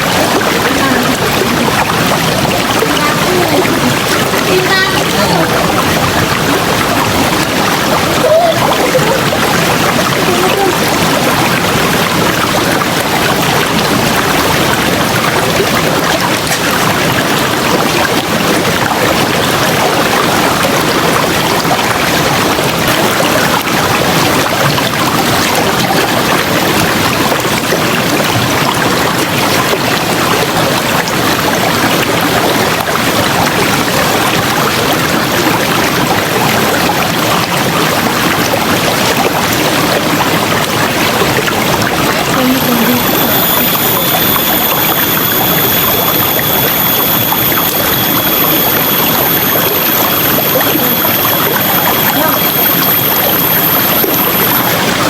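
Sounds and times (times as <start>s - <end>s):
river water flowing: 0.0s - 55.0s
faint higher sound: 42.3s - 55.0s.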